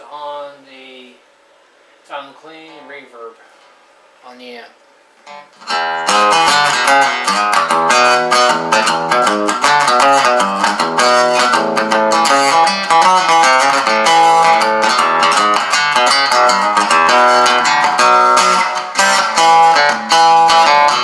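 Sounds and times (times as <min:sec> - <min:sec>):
amplified acoustic guitar: 0:05.3 - 0:21.0.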